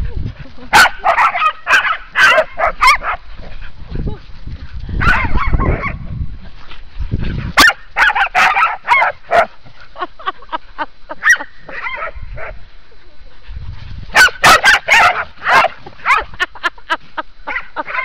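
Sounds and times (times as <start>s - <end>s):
dogs barking and yipping: 0.7s - 3.4s, 5.0s - 6.0s, 7.5s - 9.8s, 11.2s - 12.6s, 14.1s - 16.6s, 17.5s - 18.0s.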